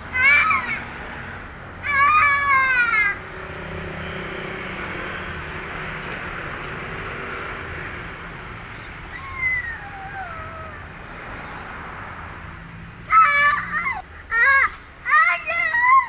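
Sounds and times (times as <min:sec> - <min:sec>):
steady background noise: 0:00.0 - 0:16.0
high-pitched falling cry: 0:09.1 - 0:10.9.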